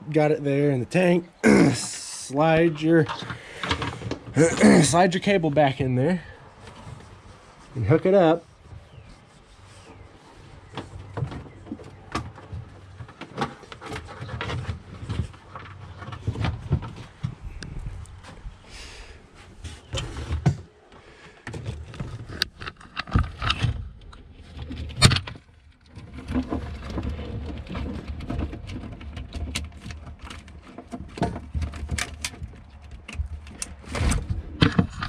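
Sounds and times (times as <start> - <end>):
parts clicking and rattling: 2.8 - 4.8, 21.4 - 35.0.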